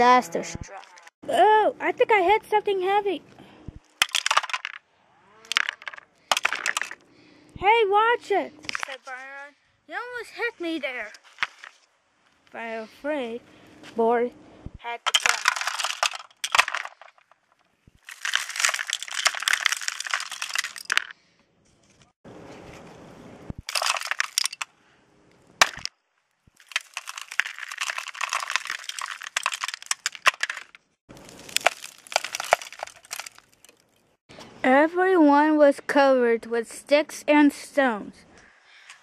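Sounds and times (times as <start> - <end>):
debris crashing and breaking: 3.9 - 4.8, 5.5 - 7.0, 15.1 - 17.4, 18.0 - 21.1, 23.6 - 24.6, 26.6 - 34.2
sharp crack: 25.6 - 34.2.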